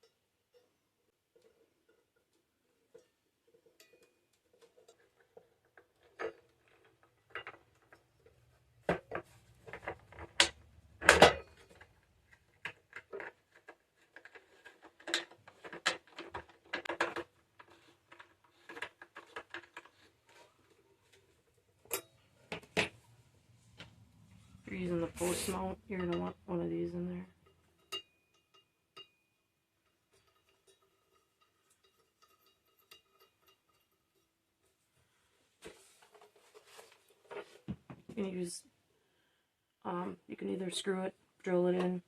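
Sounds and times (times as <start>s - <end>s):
plastic parts clicking and knocking: 1.3s - 24.3s.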